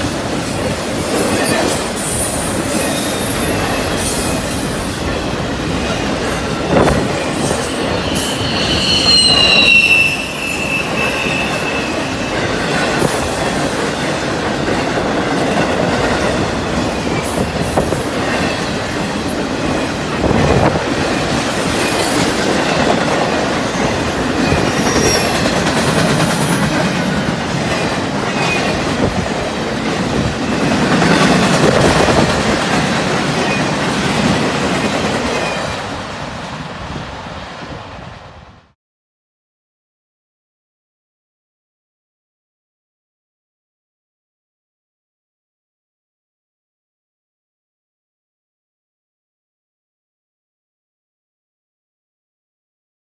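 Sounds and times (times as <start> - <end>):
steel wheels rumbling on rail: 0.0 - 38.6
faint high wheel squeals: 7.8 - 12.4, 24.6 - 25.5.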